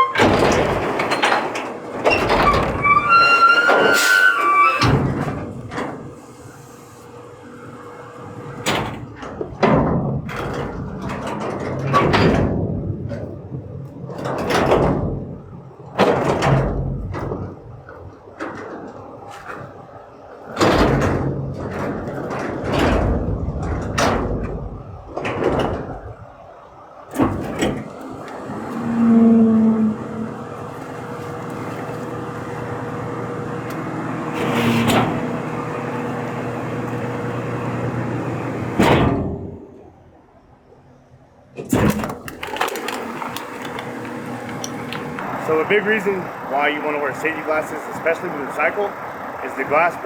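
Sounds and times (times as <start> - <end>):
heavy bangs and slams: 0.2 - 3.1.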